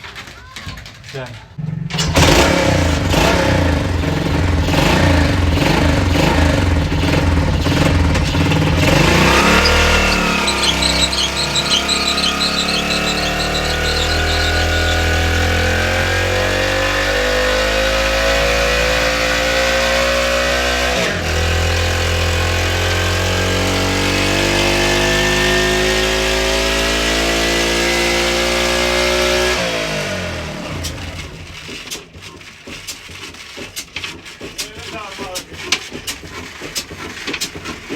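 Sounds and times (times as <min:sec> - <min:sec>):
diesel engine running: 0:02.0 - 0:18.4.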